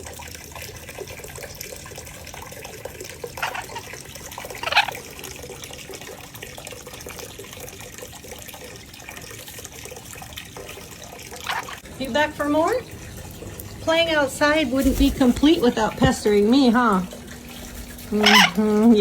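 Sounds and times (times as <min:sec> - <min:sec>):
running water rushing: 0:00.0 - 0:19.0
parrot squawks: 0:03.4 - 0:05.2, 0:11.4 - 0:11.8, 0:17.7 - 0:18.9.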